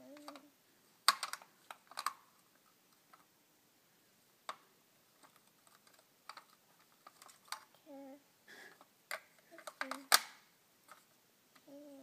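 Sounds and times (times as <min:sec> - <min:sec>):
plastic toy clicks and taps: 0:01.1 - 0:02.2, 0:09.1 - 0:10.4.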